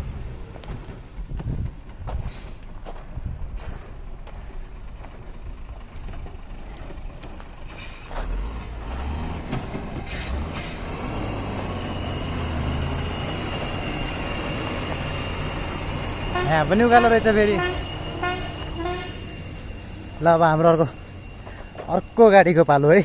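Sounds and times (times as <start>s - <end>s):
truck diesel engine labouring: 0.0s - 23.0s
thin steady whistle: 11.3s - 22.6s.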